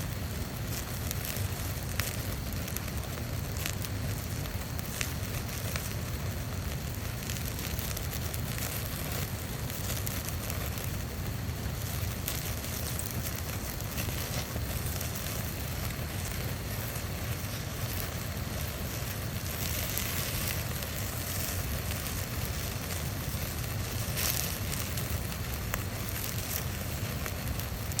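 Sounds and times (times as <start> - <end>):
faint fire crackles: 0.0 - 28.0
fire rushing flames: 0.0 - 28.0.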